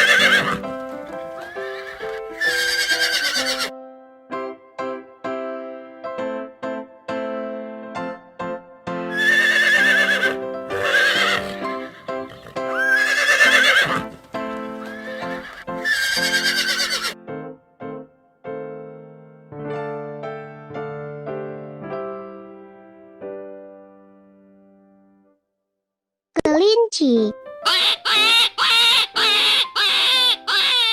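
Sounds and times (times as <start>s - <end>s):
horse whinnying: 0.0s - 3.7s, 9.1s - 17.2s, 27.7s - 30.9s
light piano music: 0.0s - 25.4s, 27.3s - 30.9s.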